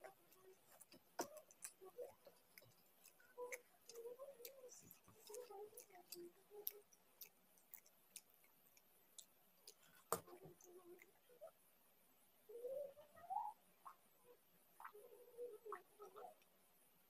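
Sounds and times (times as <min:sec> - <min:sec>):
person chewing with mouth clicks: 0:00.0 - 0:11.2.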